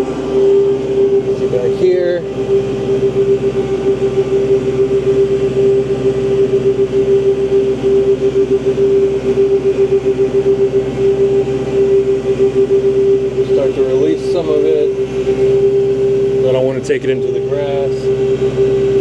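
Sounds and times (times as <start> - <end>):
steady whine: 0.0 - 19.0
tractor diesel engine: 0.0 - 19.0.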